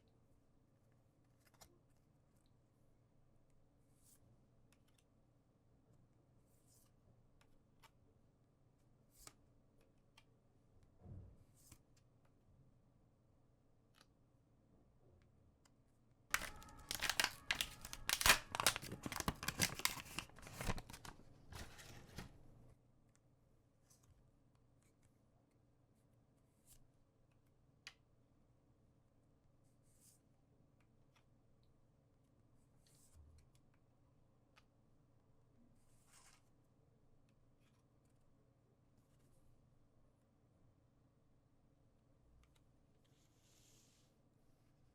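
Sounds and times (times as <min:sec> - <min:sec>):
wrapper tearing and crinkling: 0:16.3 - 0:22.2.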